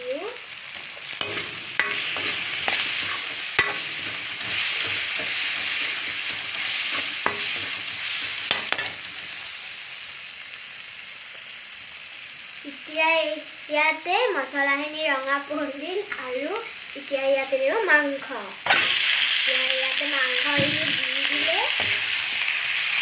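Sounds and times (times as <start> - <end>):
masala sizzling in hot oil: 0.0 - 23.0
spoon knocking against pan: 1.2 - 7.9.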